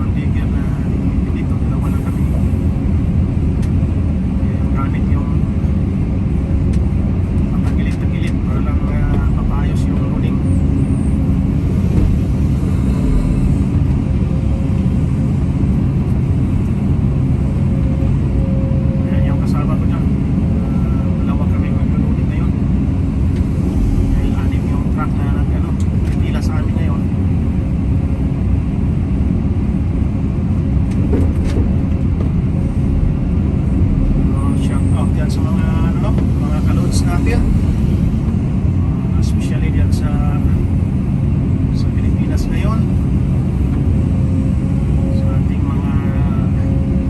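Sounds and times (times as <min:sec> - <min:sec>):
excavator diesel engine rumbling: 0:00.0 - 0:47.0.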